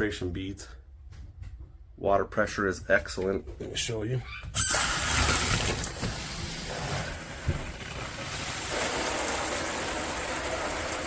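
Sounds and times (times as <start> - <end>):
shower water spraying: 4.6 - 11.0.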